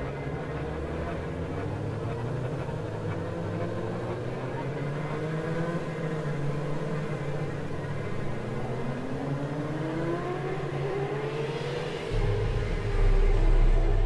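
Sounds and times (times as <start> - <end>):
car engine accelerating: 0.1 - 14.0
low drone: 10.0 - 14.0.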